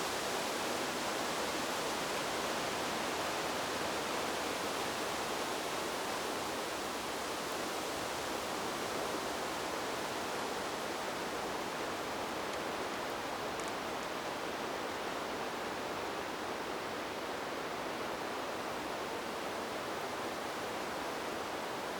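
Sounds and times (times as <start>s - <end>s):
wind blowing through trees: 0.0s - 21.9s.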